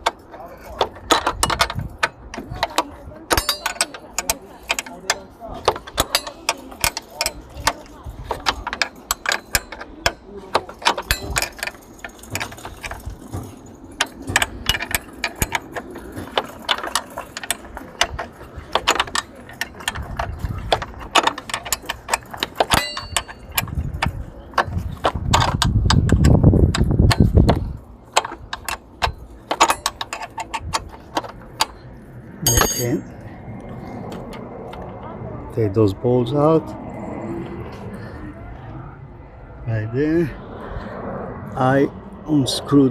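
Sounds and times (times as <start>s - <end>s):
metal tools clinking: 0.0s - 33.2s
rumbling scrape: 0.0s - 42.9s
ratchet wrench clicking: 1.0s - 31.8s.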